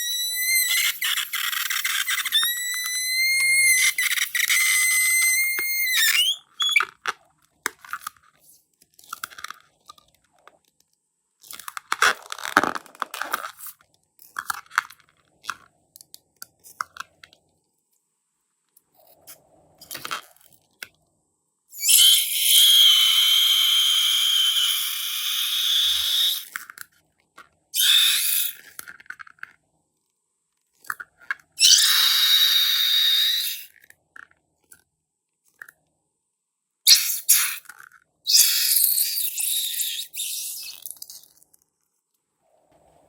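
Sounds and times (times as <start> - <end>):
high whistle: 0.0 - 6.8, 21.8 - 26.5, 27.8 - 28.6, 31.6 - 33.7, 36.9 - 37.6, 38.3 - 40.8
small clicks and crackles: 6.9 - 18.0.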